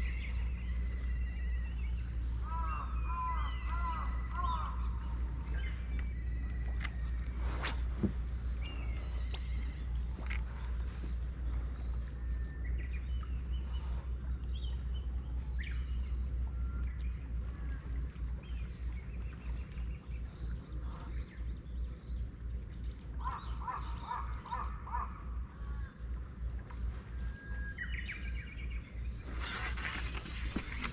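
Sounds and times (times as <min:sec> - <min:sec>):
steady low rumble: 0:00.0 - 0:23.2.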